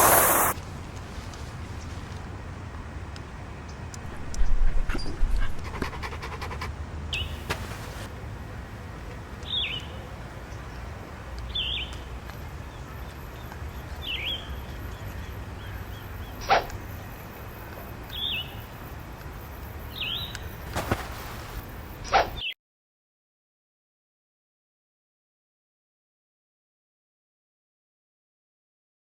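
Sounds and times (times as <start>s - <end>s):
bird chirping: 11.5s - 18.9s, 19.5s - 20.6s.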